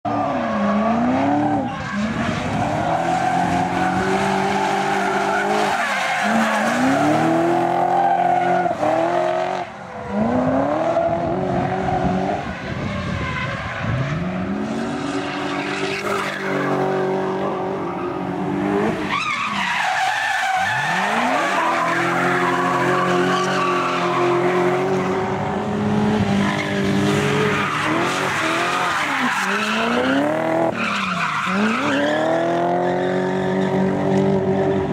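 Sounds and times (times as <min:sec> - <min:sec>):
tyres skidding and squealing: 0:00.1 - 0:34.9
car engine revving hard: 0:20.6 - 0:30.8.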